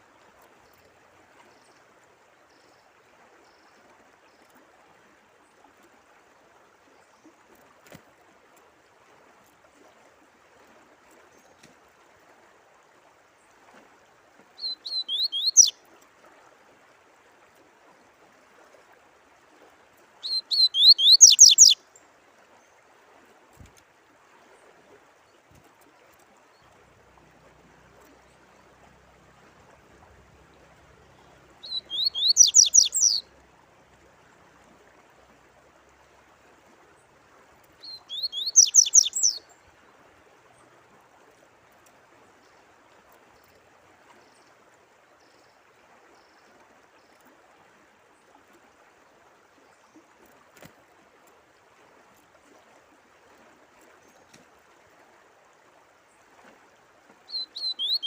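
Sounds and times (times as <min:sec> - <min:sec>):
faint running water: 0:00.0 - 0:58.0
songbird singing descending notes: 0:14.6 - 0:15.8, 0:20.2 - 0:21.8, 0:31.6 - 0:33.3, 0:37.8 - 0:39.4, 0:57.3 - 0:58.0.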